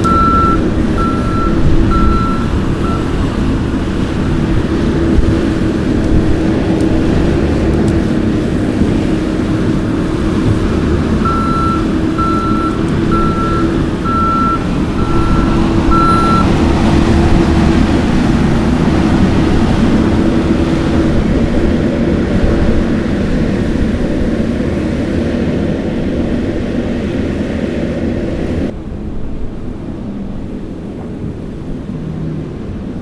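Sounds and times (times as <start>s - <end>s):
backup alarm beeping: 0.0s - 4.5s, 11.2s - 17.1s
diesel engine under load: 0.0s - 29.0s.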